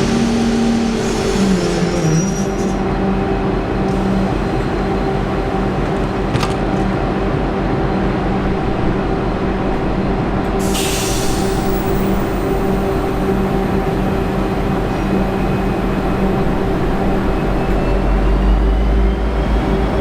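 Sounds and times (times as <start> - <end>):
diesel locomotive idling: 10.5 - 20.0
air hiss: 10.6 - 13.1.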